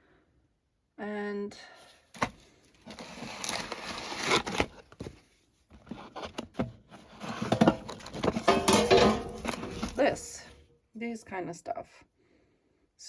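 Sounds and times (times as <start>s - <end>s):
rustling: 7.1s - 10.6s
objects clattering in a pot: 7.2s - 10.5s.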